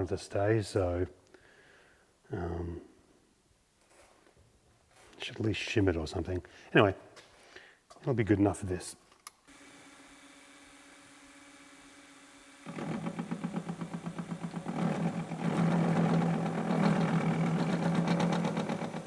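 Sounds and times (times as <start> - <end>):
milling spindle hum: 9.5 - 19.0
cutter chattering on metal: 12.6 - 19.0.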